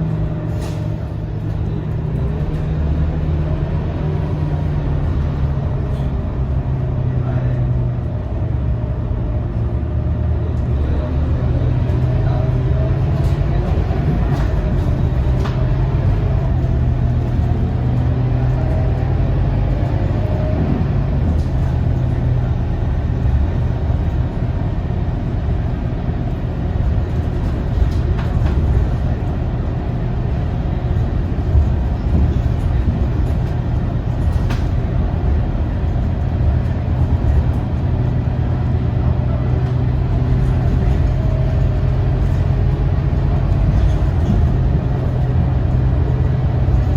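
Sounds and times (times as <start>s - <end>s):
bus diesel engine running: 0.0s - 46.9s
road and tyre noise: 0.0s - 46.9s.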